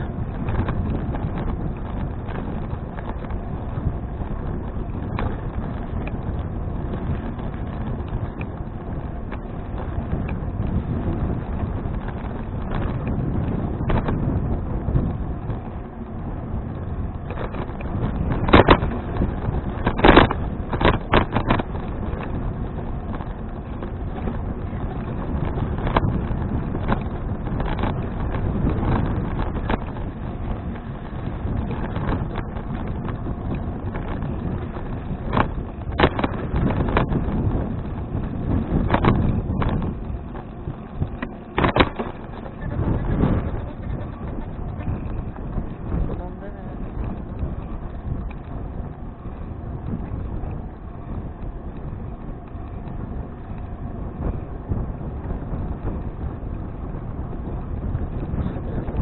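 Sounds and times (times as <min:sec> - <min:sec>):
wind buffeting microphone: 0:00.0 - 0:59.0
sharp knocks and rattles: 0:23.0 - 0:48.5.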